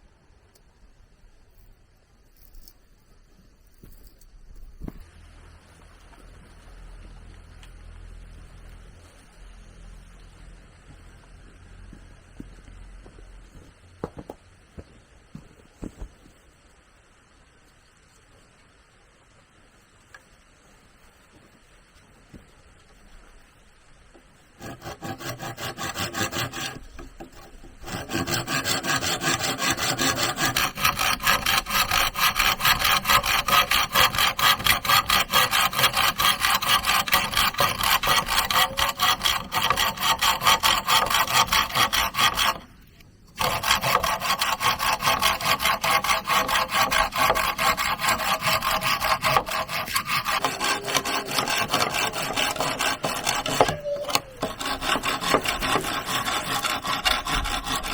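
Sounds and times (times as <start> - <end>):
hand saw cutting wood: 24.6 - 57.9.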